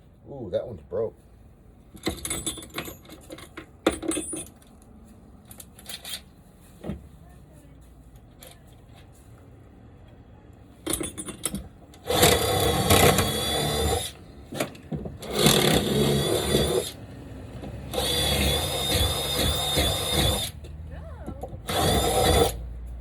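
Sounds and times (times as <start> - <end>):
power drill running in bursts: 12.0 - 14.2, 15.2 - 17.0, 17.9 - 20.6, 21.7 - 22.6.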